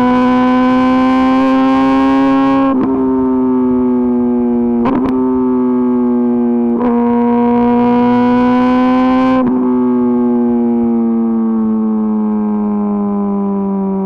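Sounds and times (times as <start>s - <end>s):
motorcycle engine at high revs: 0.0s - 14.0s.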